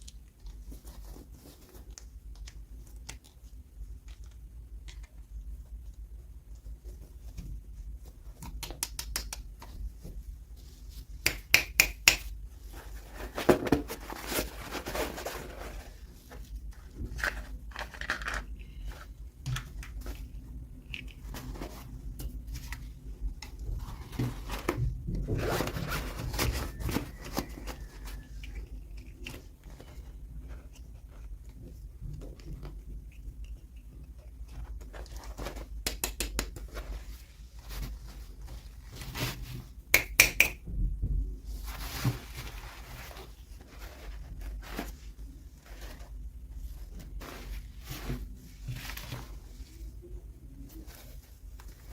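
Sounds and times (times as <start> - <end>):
packaging rustling and scraping: 12.6 - 35.8, 41.5 - 50.0.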